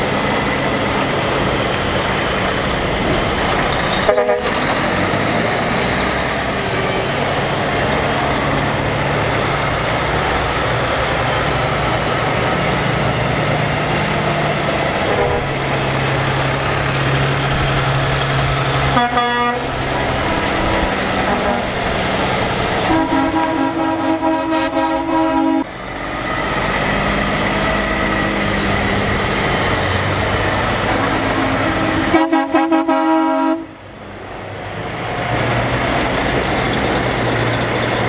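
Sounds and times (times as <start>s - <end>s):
heavy truck engines passing: 0.0s - 38.0s
air horn blasts: 4.0s - 5.0s, 15.1s - 15.6s, 18.9s - 19.8s, 21.2s - 21.8s, 22.8s - 25.7s, 30.9s - 33.8s.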